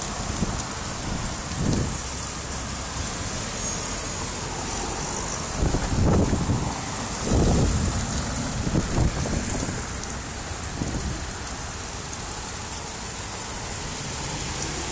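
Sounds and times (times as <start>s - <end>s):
gusty wind buffeting microphone: 0.2s - 2.0s, 5.4s - 11.3s.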